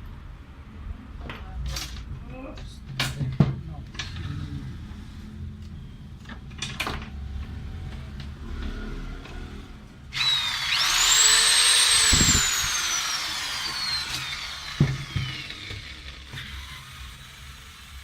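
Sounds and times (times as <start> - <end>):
electric drill motor whining: 10.1 - 18.0.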